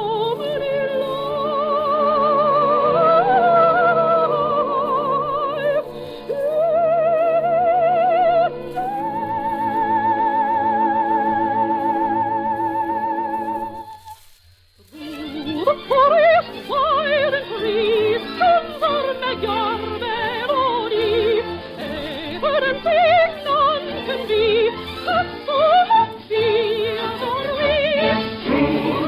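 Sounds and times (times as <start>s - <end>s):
orchestral accompaniment: 14.9s - 29.0s.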